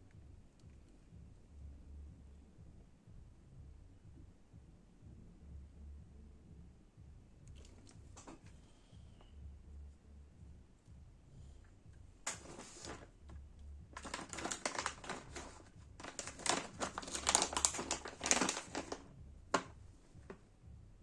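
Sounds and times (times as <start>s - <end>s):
crinkling and rustling: 7.5s - 8.6s, 12.2s - 20.4s.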